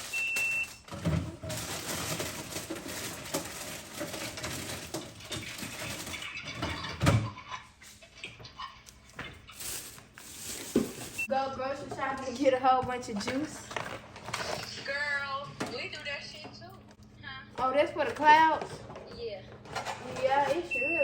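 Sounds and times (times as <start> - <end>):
packaging rustling and crinkling: 0.0 - 6.6, 9.2 - 11.3, 13.3 - 15.0
items thumping down: 0.0 - 7.4, 9.2 - 12.1.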